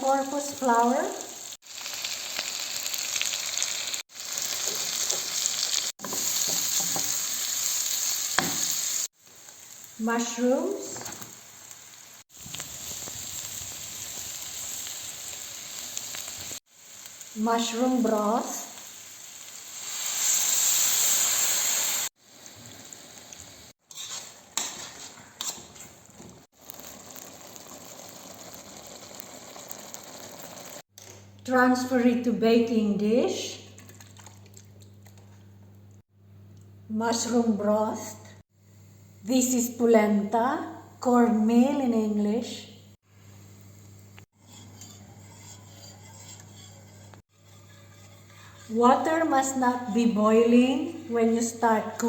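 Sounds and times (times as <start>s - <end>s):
food sizzling in frying pan: 0.0s - 30.9s.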